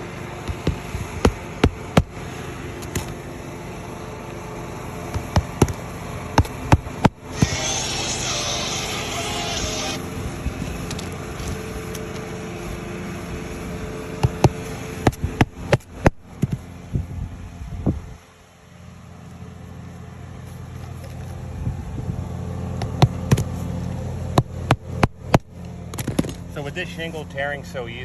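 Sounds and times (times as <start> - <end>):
steady low hum: 0.0 - 28.0
hand tools tapping on shingles: 14.2 - 16.6.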